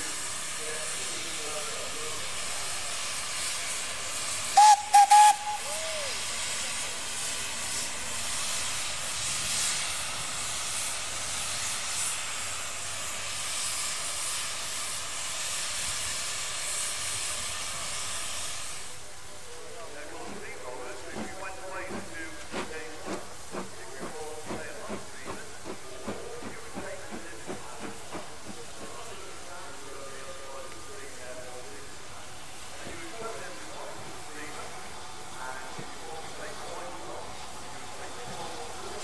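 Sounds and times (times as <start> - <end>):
steam hissing: 0.0 - 39.0
steam whistle toots: 4.5 - 6.4.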